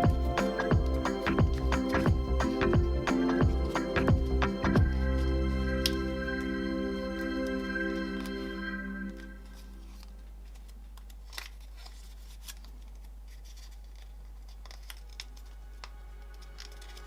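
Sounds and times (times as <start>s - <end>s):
steady low hum: 0.0s - 11.0s
scissors snipping paper: 9.6s - 17.0s.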